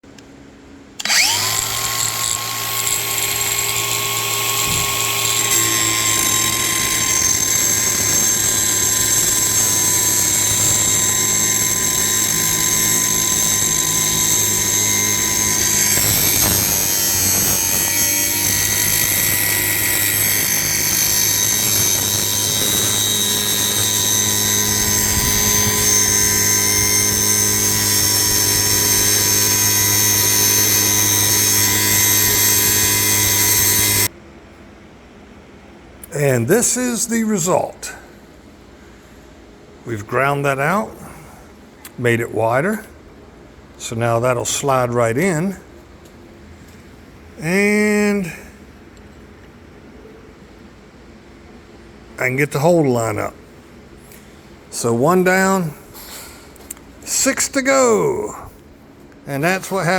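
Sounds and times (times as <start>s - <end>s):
electric grinder grinding metal: 1.0s - 34.1s.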